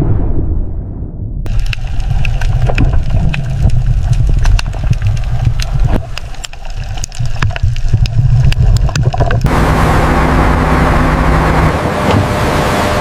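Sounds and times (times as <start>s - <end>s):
wind and sea rushing: 0.0s - 13.0s
boat engine rumbling: 1.5s - 13.0s.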